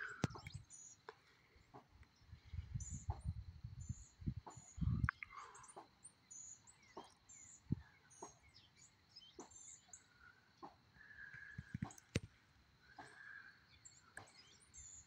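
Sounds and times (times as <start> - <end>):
small birds chirping: 0.0 - 15.0
wind gusting on microphone: 2.2 - 5.3.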